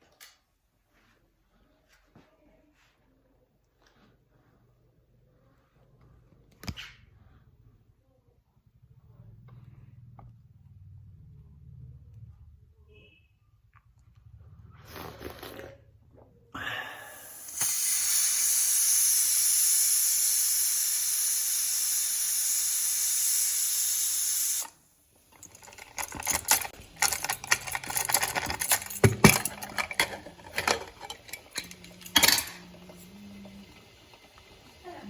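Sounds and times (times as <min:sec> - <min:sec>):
steam venting hiss: 0:16.7 - 0:25.3, 0:29.9 - 0:35.0
kitchen utensils clicking and knocking: 0:25.3 - 0:34.8.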